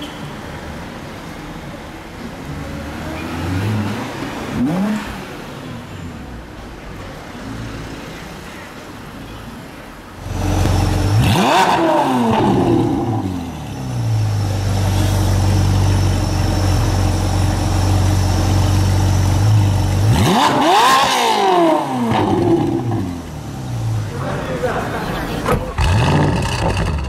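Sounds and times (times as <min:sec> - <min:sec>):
car engine revving: 0:10.2 - 0:24.2, 0:25.5 - 0:27.0
car engine idling: 0:12.8 - 0:20.3.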